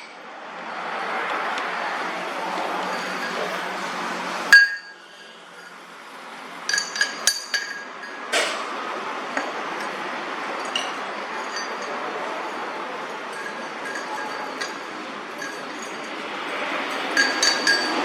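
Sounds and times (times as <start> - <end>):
steady background noise: 0.0 - 18.0
metal parts clinking: 6.7 - 8.6, 10.6 - 18.0.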